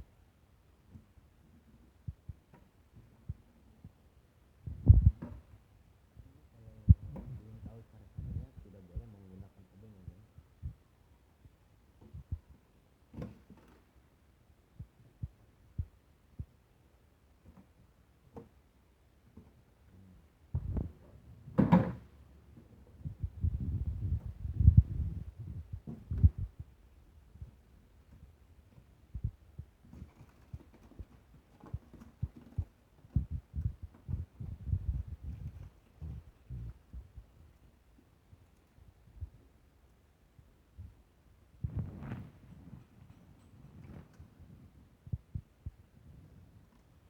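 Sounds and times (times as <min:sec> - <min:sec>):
dull low thumps and knocks: 0:04.6 - 0:05.5, 0:06.9 - 0:09.1, 0:20.5 - 0:21.0, 0:23.0 - 0:30.0, 0:31.7 - 0:37.4
faint low thumps and knocks: 0:04.6 - 0:05.6, 0:06.2 - 0:09.3, 0:09.9 - 0:13.6, 0:14.7 - 0:16.6, 0:20.5 - 0:38.4, 0:40.3 - 0:46.8.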